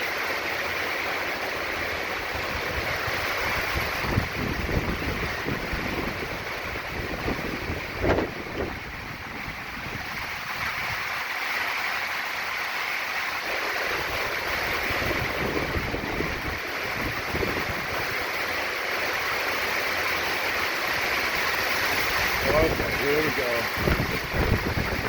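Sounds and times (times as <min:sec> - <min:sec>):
wind driving heavy rain: 0:00.0 - 0:25.0
gusts buffeting microphone: 0:02.3 - 0:11.1, 0:14.0 - 0:18.2, 0:21.4 - 0:25.0.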